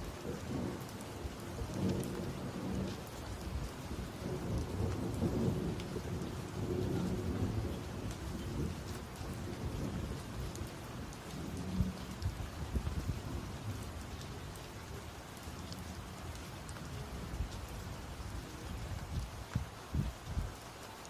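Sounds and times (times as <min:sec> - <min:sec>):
thunder rumbling: 0:00.0 - 0:15.0
steady rain: 0:00.0 - 0:21.0.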